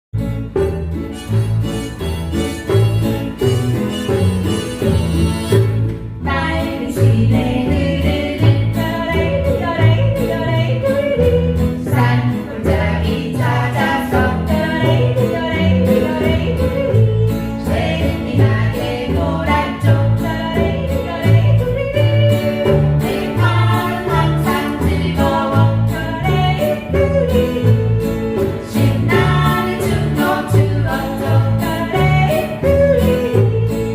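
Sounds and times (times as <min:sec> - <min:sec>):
instrumental music with bass line: 0:00.1 - 0:33.9
group singing: 0:06.2 - 0:33.9.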